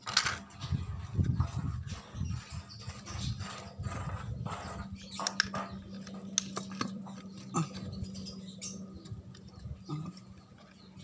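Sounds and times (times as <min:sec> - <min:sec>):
clicks and taps of tools: 0:05.2 - 0:07.4.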